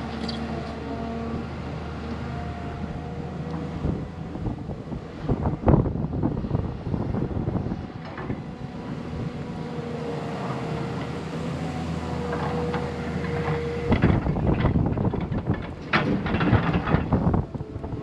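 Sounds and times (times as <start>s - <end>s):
diesel engine running with whine: 0.0s - 18.0s
rough rush of noise with knocks: 12.2s - 17.4s.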